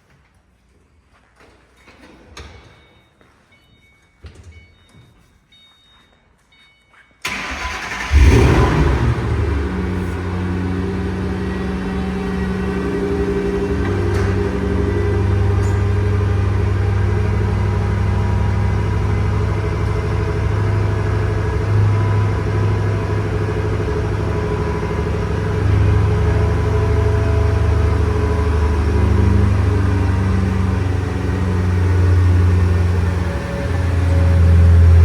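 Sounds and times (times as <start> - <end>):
car engine idling: 7.3 - 35.0.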